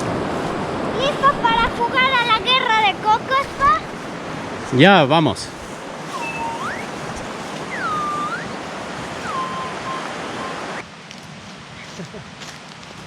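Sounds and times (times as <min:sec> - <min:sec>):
wind on microphone: 0:00.0 - 0:04.8, 0:05.4 - 0:10.8
swooping whistled notes: 0:06.1 - 0:10.8.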